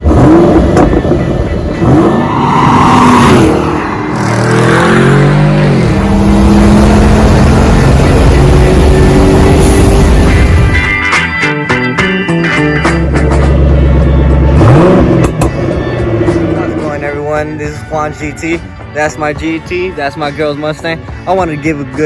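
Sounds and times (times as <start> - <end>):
car engine revving: 0.0 - 10.9, 12.6 - 17.1.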